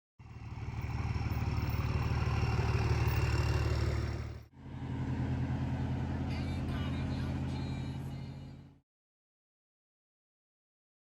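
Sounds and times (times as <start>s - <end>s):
another engine: 0.2s - 8.8s
truck engine running: 0.2s - 8.8s.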